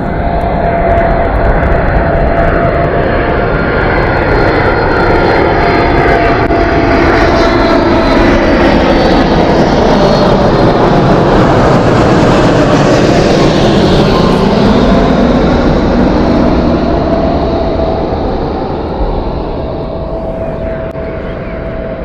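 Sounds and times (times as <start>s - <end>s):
jet engines running loud: 0.0s - 22.0s.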